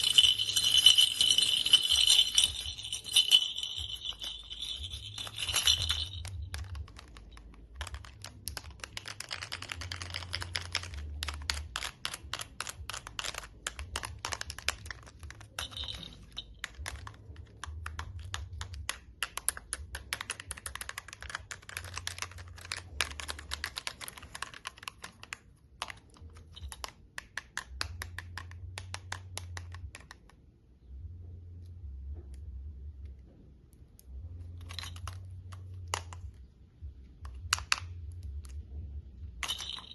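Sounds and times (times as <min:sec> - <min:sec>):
sensory toy clicking: 0:01.4 - 0:16.0.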